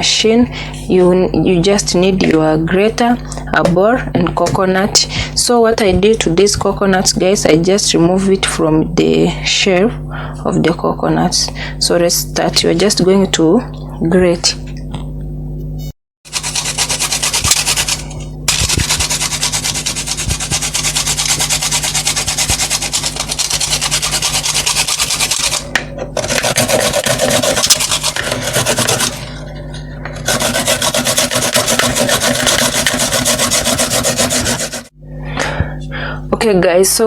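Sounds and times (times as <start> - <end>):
coconut grated by hand: 16.3 - 35.0.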